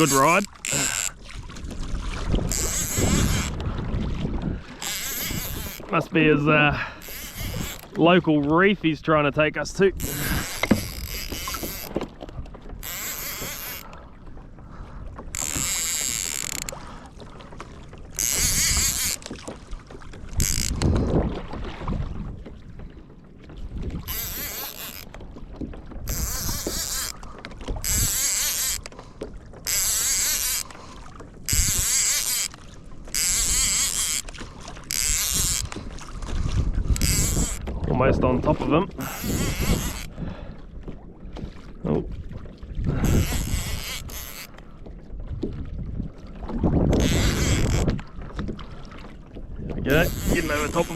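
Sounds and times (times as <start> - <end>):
fishing reel whirring: 0.0 - 1.2, 2.4 - 3.6, 4.8 - 8.0, 10.0 - 12.0, 12.8 - 14.0, 15.3 - 16.8, 18.1 - 19.4, 20.3 - 20.9, 24.0 - 25.2, 26.1 - 27.2, 27.8 - 29.0, 29.6 - 30.8, 31.5 - 35.9, 36.8 - 37.6, 39.0 - 40.1, 43.0 - 44.6, 46.9 - 47.9, 49.9 - 50.9
water: 0.0 - 50.9
wind: 0.0 - 50.9.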